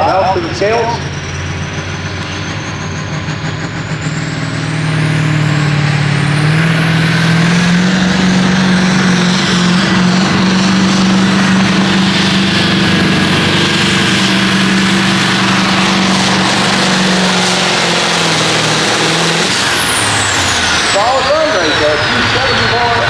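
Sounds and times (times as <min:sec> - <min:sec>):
diesel engine revving: 0:00.0 - 0:23.0.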